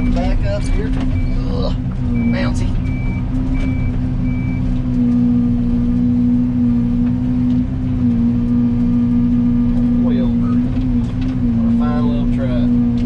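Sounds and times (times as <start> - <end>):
excavator diesel engine running: 0.0 - 13.0
reversing alarm beep: 1.1 - 4.7.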